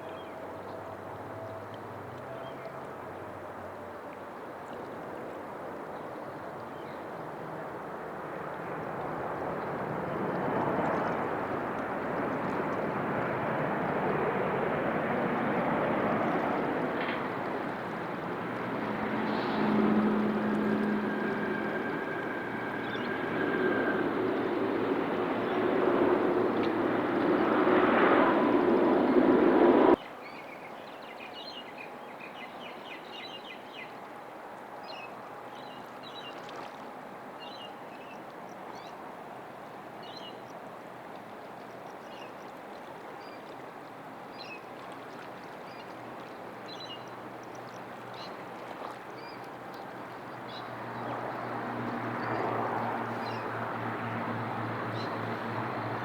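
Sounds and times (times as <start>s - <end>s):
jet engine whine: 8.4s - 30.0s.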